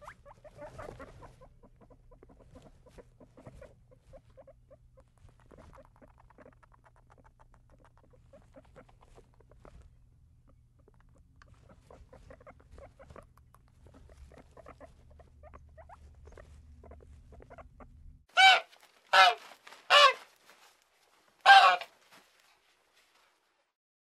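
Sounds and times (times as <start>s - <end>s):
faint squeaking and pattering: 0.0s - 23.6s
short high animal calls: 18.4s - 20.3s, 21.4s - 21.9s.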